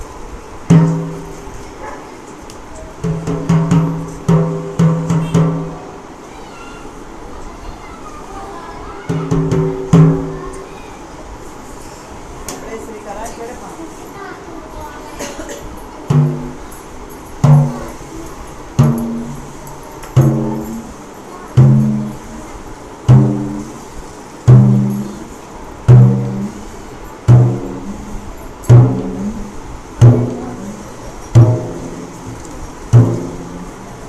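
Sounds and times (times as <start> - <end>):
bass drum strokes ringing: 0.6 - 1.6, 3.0 - 6.1, 9.1 - 10.6, 16.0 - 34.0.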